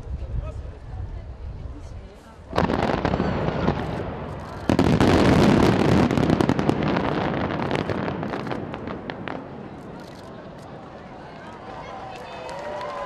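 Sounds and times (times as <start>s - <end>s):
fireworks launch bangs: 2.5s - 11.1s
fireworks bursts and bangs: 2.5s - 13.0s
fireworks crackles and pops: 2.5s - 13.0s.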